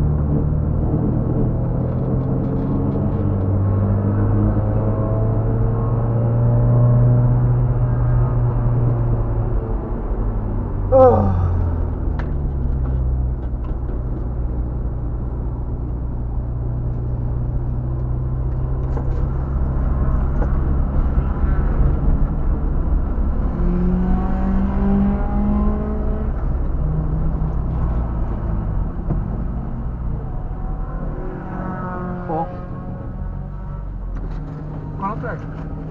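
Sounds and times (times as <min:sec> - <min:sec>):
road and tyre noise: 0:00.0 - 0:35.9
car engine running: 0:07.8 - 0:35.9.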